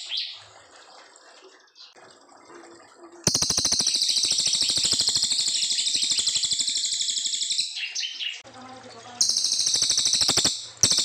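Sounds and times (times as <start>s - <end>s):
songbird rattling trill: 3.3s - 8.3s, 9.2s - 11.0s.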